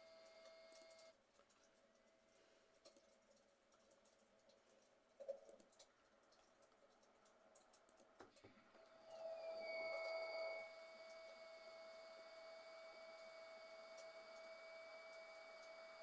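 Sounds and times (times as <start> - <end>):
faint steady hum: 0.0 - 16.0
faint clicks: 0.2 - 9.0.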